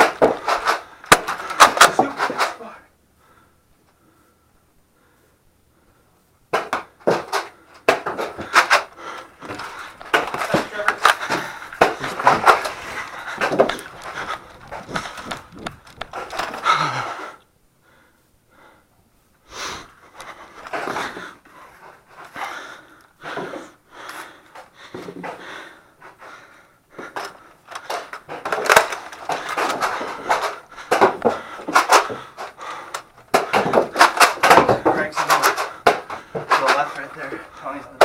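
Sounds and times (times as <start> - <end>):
handling noise: 0.0 - 2.8, 6.5 - 17.3, 27.0 - 38.0
person breathing hard: 0.0 - 38.0.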